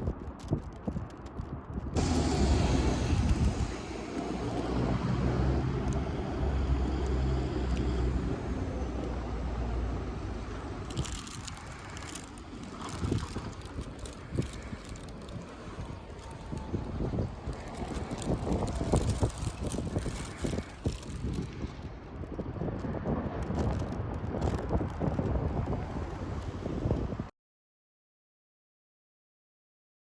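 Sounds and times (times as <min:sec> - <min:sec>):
electric train passing: 0:02.0 - 0:13.7.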